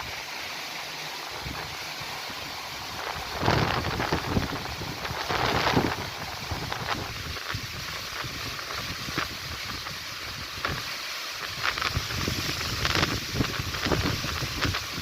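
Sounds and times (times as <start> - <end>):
strong wind gusting: 1.3 - 9.9, 11.8 - 15.0
wind buffeting microphone: 2.7 - 10.8, 11.6 - 15.0.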